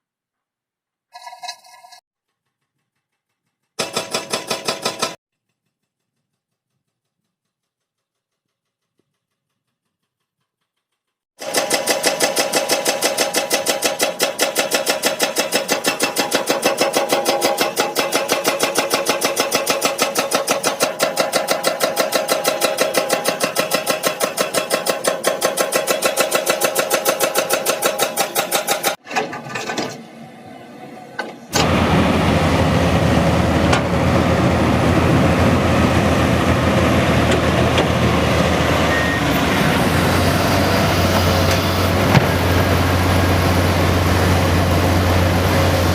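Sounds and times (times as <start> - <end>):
rapid mechanical clatter: 2.2 - 29.7
excavator engine rumbling: 29.0 - 45.9.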